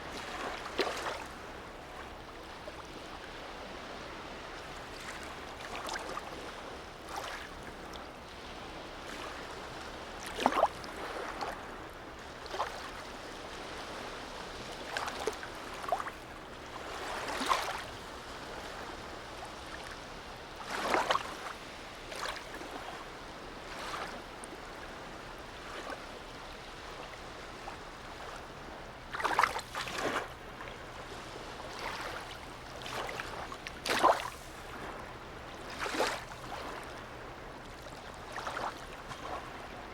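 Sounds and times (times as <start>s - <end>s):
small water splashes: 0.0s - 1.4s, 4.8s - 6.5s, 7.1s - 8.0s, 9.1s - 11.6s, 14.7s - 23.0s, 29.0s - 37.0s, 37.6s - 39.7s
sea water lapping: 0.0s - 39.9s.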